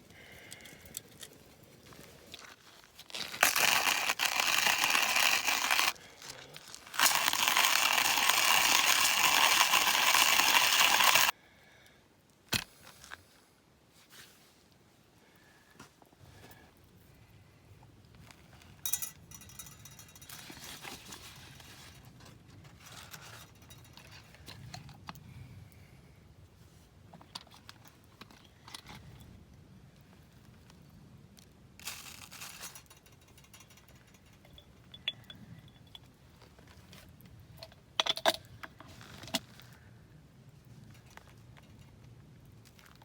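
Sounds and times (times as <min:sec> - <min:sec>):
sharp clinks: 0:18.9 - 0:20.6, 0:32.5 - 0:36.1.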